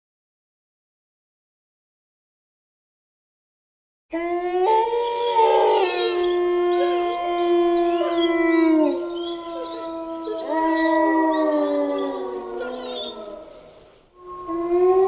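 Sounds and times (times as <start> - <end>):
wolves howling in chorus: 4.1 - 15.0.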